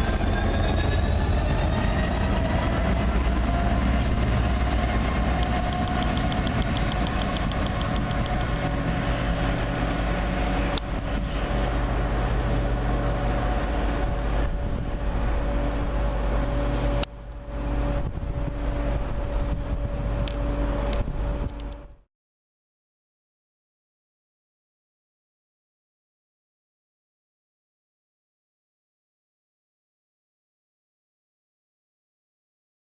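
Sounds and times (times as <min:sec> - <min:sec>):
train low rumble and hum: 0:00.0 - 0:22.1
sharp clicks: 0:05.4 - 0:08.5.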